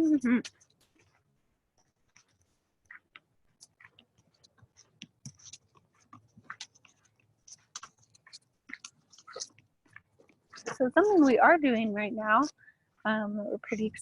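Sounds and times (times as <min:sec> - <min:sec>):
snap pea being chewed: 0:02.9 - 0:10.8.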